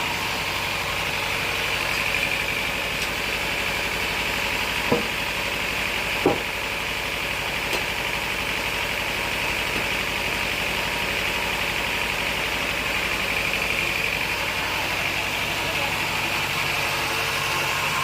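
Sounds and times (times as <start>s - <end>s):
sawmill machinery running: 0.0s - 18.0s
short knock: 6.2s - 6.5s.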